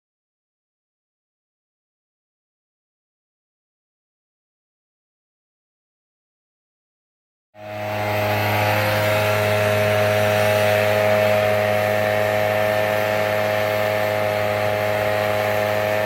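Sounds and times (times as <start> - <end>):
skid steer engine droning: 7.6 - 16.0.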